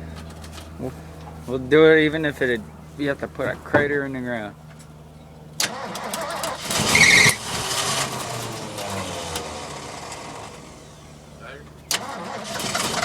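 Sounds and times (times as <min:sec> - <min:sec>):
truck engine cranking: 0:05.5 - 0:13.0
short high squeal: 0:06.8 - 0:07.4.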